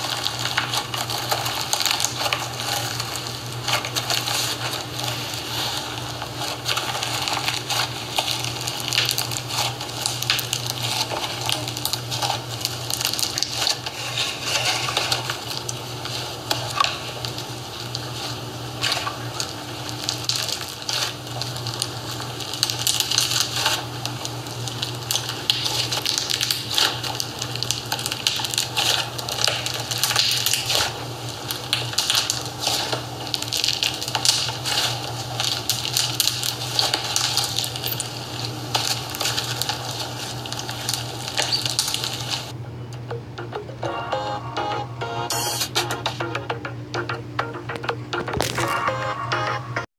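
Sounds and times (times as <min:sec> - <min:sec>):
slime crust crunching and crackling: 0:00.0 - 0:42.6, 0:47.7 - 0:49.2.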